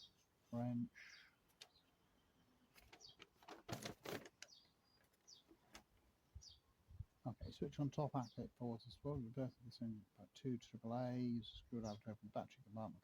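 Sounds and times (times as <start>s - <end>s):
paper leaflet crackling and rustling: 2.7s - 5.9s.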